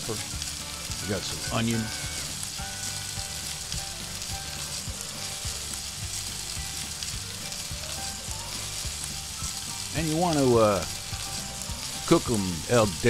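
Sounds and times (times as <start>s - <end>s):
food sizzling in a skillet: 0.0s - 13.0s.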